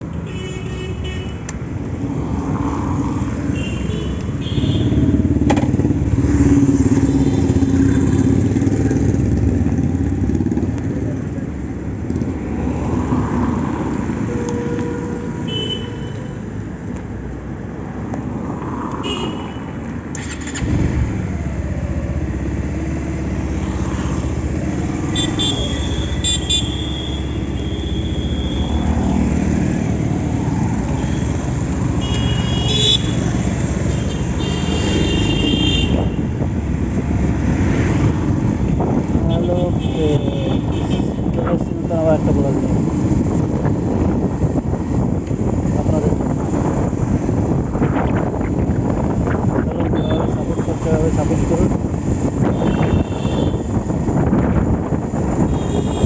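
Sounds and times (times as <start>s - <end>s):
motorcycle engine: 3.6s - 11.4s, 20.1s - 39.4s.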